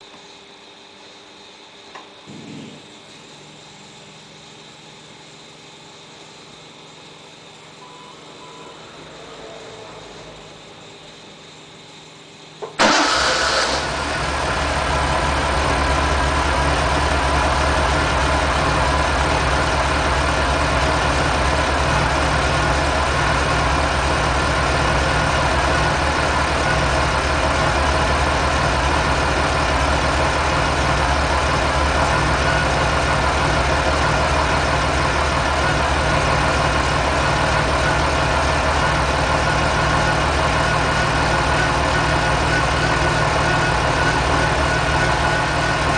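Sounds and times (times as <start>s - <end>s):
car engine starting and idling: 12.6s - 45.9s.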